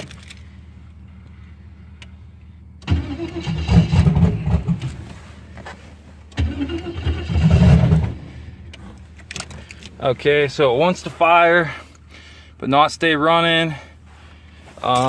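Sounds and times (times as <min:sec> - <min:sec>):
engine cranking and firing briefly: 0:02.8 - 0:05.0, 0:06.3 - 0:08.4.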